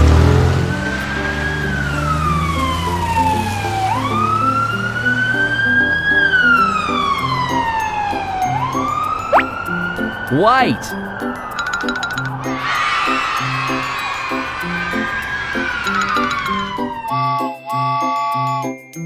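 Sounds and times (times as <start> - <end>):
simple background tune: 0.1 - 12.8, 16.0 - 19.0
cartoon siren wailing: 1.5 - 11.0, 12.7 - 17.4
quick upward whistle: 5.3 - 17.4.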